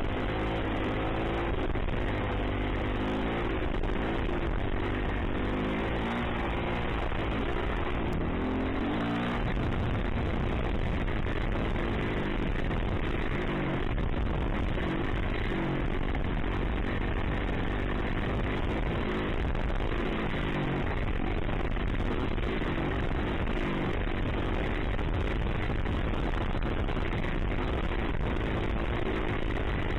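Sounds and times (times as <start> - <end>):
dirt bike engine revving: 0.0 - 21.1.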